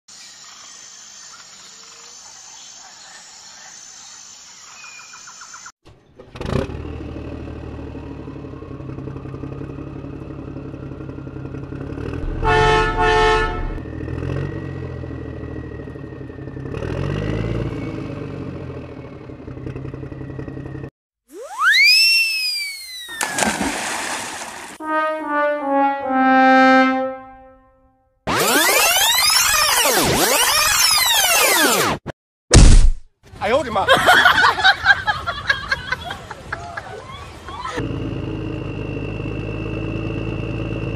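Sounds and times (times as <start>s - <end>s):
engine droning: 5.9s - 21.6s, 37.8s - 40.9s
horn honking: 12.0s - 13.9s, 24.8s - 28.8s.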